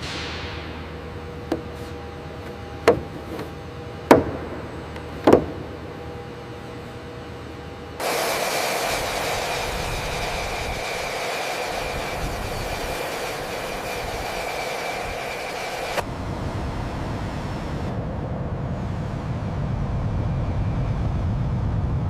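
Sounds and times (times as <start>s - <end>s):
jet engine hiss and whine: 0.0s - 22.0s
low rumble: 16.0s - 22.0s.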